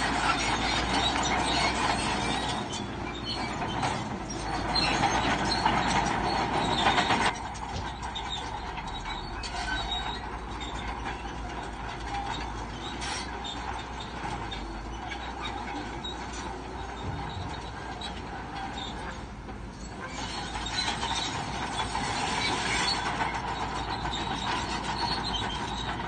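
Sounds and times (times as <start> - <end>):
bulldozer engine: 0.0 - 26.0
steel tracks clanking and squealing: 0.0 - 26.0.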